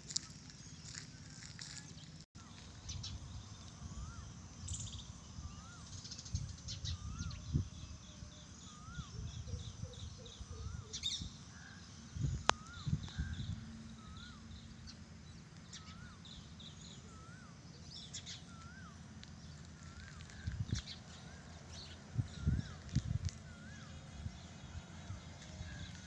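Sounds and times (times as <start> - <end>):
wind on microphone: 2.8 - 8.3, 12.1 - 13.7, 20.2 - 21.1, 21.9 - 26.0.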